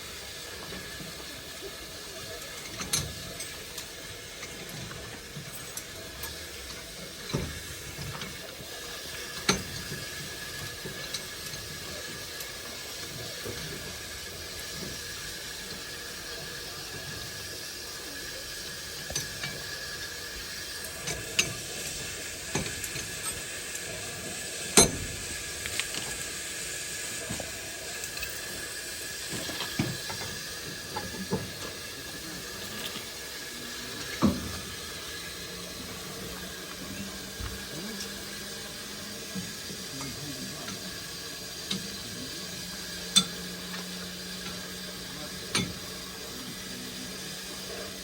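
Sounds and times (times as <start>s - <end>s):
steam locomotive hissing: 0.0s - 48.0s.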